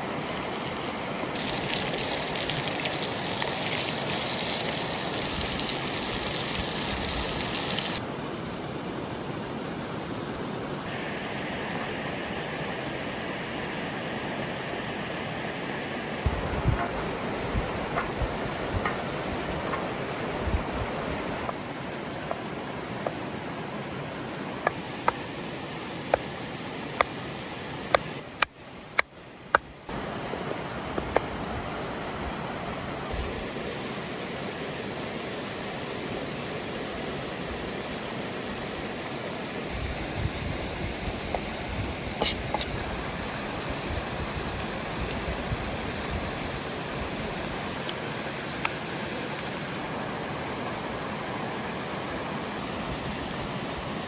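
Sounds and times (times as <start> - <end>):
sausages sizzling: 1.4 - 8.0.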